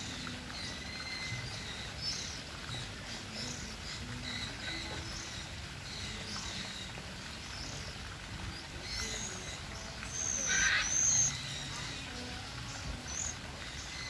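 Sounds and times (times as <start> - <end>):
faint bird chirps: 8.8 - 14.0
high-pitched bird call: 8.9 - 12.2.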